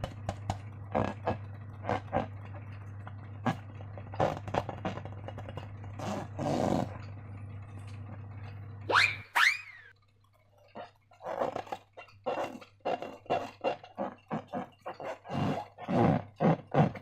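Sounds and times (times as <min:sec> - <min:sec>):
rising squeaks: 0:08.9 - 0:09.9
slime squelching: 0:10.6 - 0:17.0.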